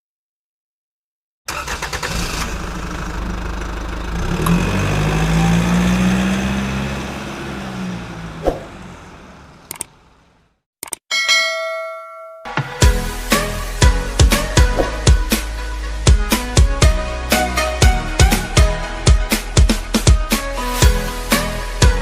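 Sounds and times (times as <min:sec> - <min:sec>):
engine starting and revving: 0:01.5 - 0:10.4
short ringing chime: 0:11.1 - 0:12.6.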